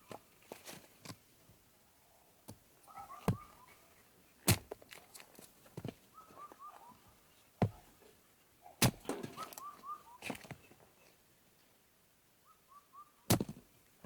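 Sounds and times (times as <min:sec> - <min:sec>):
bird calling: 0:02.9 - 0:03.9, 0:06.1 - 0:07.9, 0:08.6 - 0:10.8, 0:12.4 - 0:13.3.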